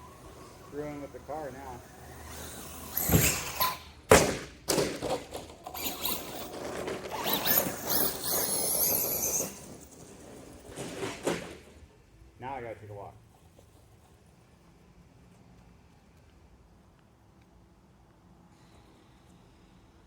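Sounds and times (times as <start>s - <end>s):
high electric motor whine: 0.0s - 3.8s
toy car hitting ground: 2.3s - 11.8s
toy car rattling and clattering: 4.7s - 11.8s.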